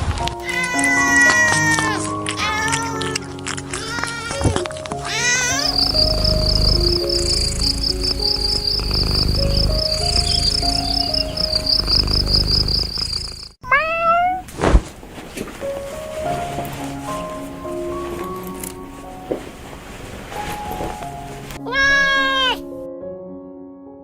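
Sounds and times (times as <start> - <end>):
soft background music: 0.0 - 12.6, 15.4 - 24.0
cat meowing: 0.4 - 13.0, 13.6 - 14.5, 21.6 - 22.7
cricket chirping: 5.0 - 13.6.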